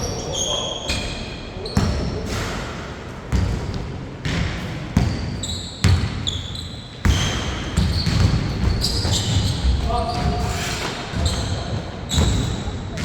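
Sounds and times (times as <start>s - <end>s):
sneaker squeaks: 0.0s - 2.5s, 5.0s - 13.0s
basketball bouncing on a court: 1.7s - 2.4s, 3.3s - 10.5s, 11.1s - 13.0s.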